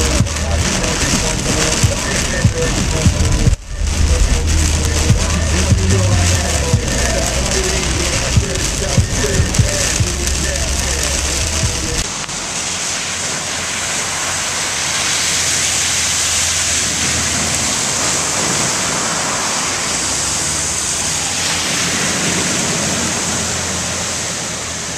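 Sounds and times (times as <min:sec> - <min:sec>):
strong wind over microphone: 0:00.0 - 0:12.0.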